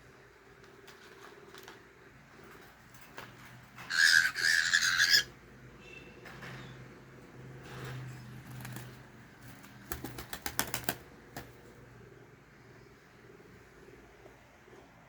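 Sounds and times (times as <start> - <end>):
cockatiel squawking: 3.9 - 5.3.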